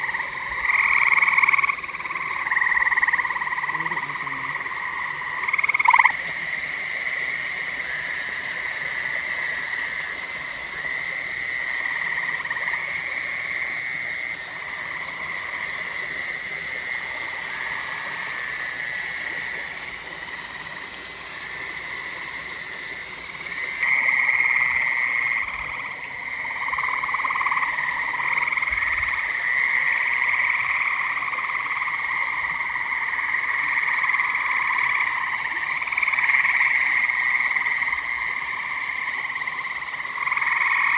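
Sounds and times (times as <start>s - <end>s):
chorus of frogs calling: 0.0s - 40.9s.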